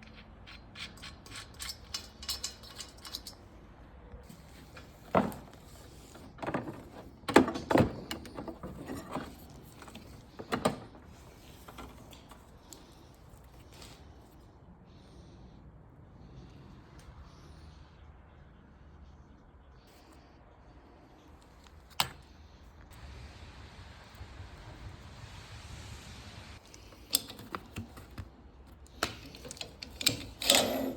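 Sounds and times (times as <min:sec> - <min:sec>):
small metal parts jingling: 0:00.0 - 0:03.5.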